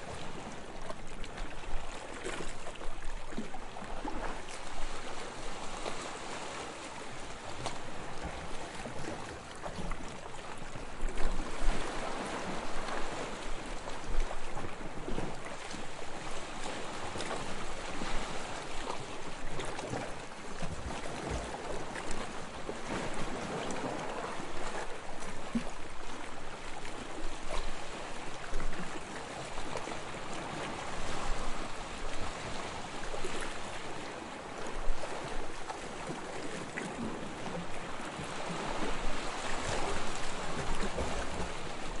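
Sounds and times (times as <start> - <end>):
waves lapping on sandy shore: 0.0 - 42.0.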